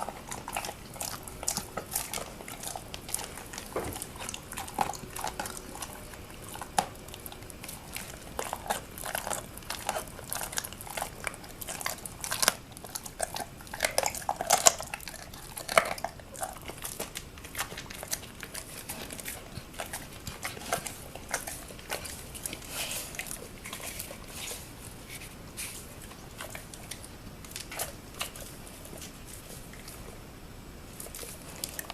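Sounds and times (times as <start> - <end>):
dog chewing bone: 0.0 - 31.9.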